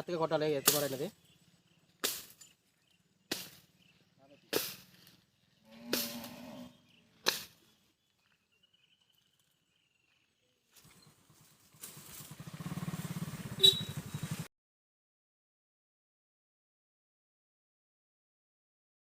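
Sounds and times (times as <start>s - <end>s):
sharp knock: 3.3s - 3.6s
small engine running: 10.8s - 14.5s.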